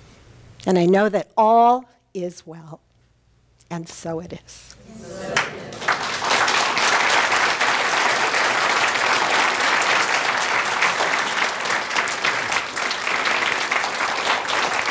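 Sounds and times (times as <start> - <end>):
crowd applauding: 5.0 - 14.9.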